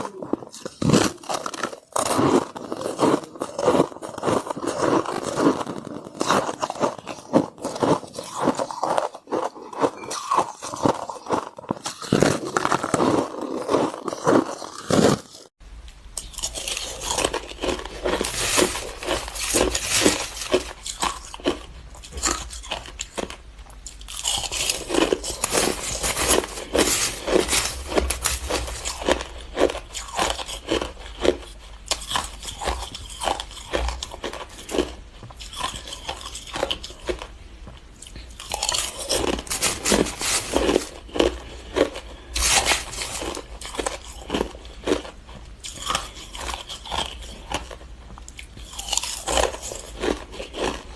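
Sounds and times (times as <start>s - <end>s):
ice being chewed: 0.0s - 15.5s, 16.2s - 50.9s
faint low hum: 15.6s - 50.9s.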